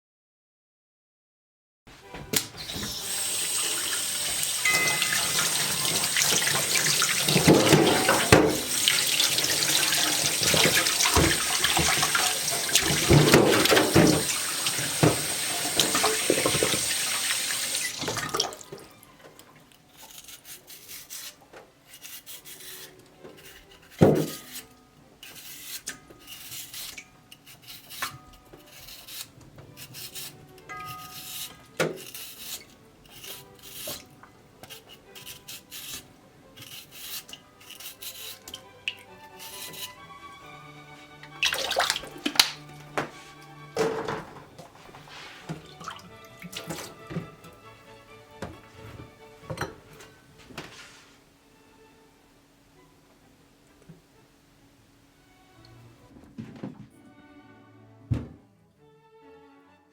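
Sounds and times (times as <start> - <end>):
tap running into a sink: 2.2 - 18.8, 41.3 - 43.1.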